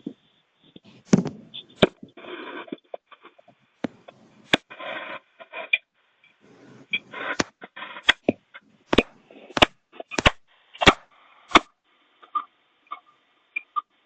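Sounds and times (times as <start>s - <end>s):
rustling: 6.4s - 11.6s.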